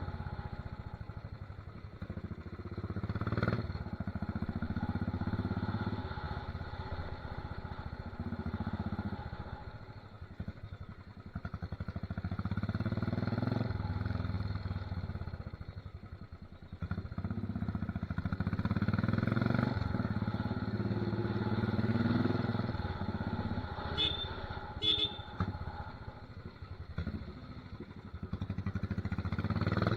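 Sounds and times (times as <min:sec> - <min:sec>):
motorcycle engine running loud: 0:00.0 - 0:29.9.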